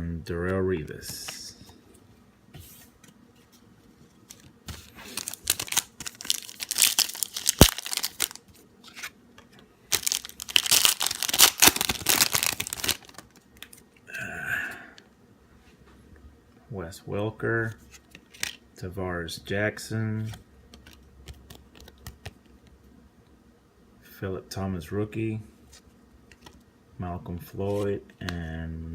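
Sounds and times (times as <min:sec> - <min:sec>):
wrapper tearing and crinkling: 0:04.9 - 0:09.1, 0:09.9 - 0:13.8.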